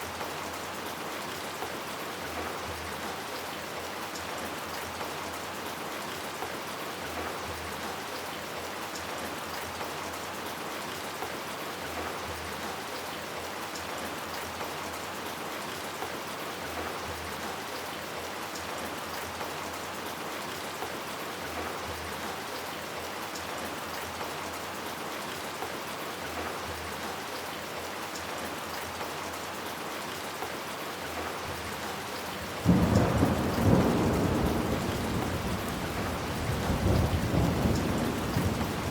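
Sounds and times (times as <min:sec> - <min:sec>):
steady rain falling: 0:00.0 - 0:38.9
thunder clap and rumble: 0:32.5 - 0:38.9.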